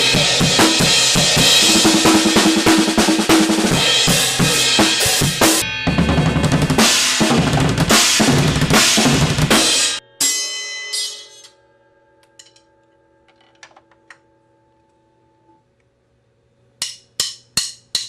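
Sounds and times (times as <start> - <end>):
drum kit playing: 0.0 - 10.5.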